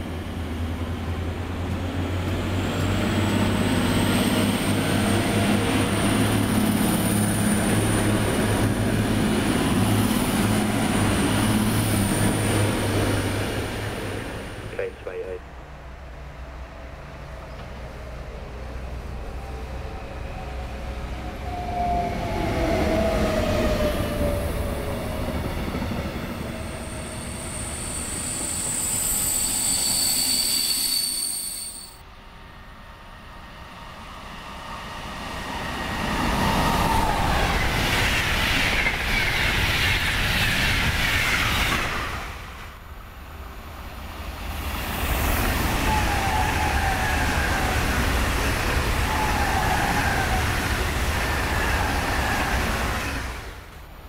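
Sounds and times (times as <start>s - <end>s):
high-pitched wheel squeal: 26.6s - 32.0s.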